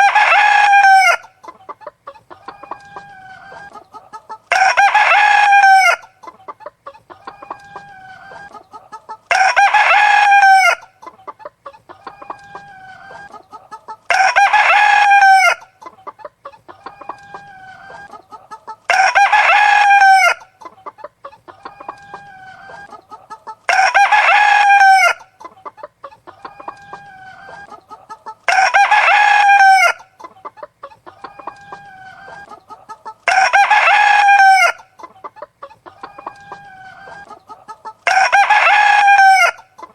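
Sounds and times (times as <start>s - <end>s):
rooster crowing: 0.0s - 1.3s, 4.5s - 6.1s, 9.3s - 10.9s, 14.1s - 15.7s, 18.9s - 20.5s, 23.7s - 25.3s, 28.5s - 30.1s, 33.2s - 34.9s, 38.0s - 39.7s
hens clucking: 0.0s - 39.9s.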